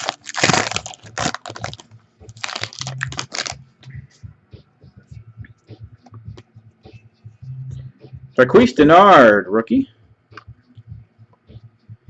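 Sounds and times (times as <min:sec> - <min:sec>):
card pack wrapper tearing: 0:00.0 - 0:03.6.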